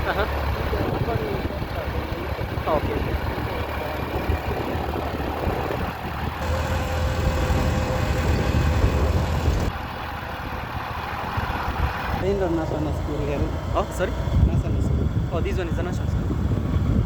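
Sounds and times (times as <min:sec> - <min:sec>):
motorcycle engine running: 0:00.0 - 0:15.4
road and wind noise: 0:00.0 - 0:17.0.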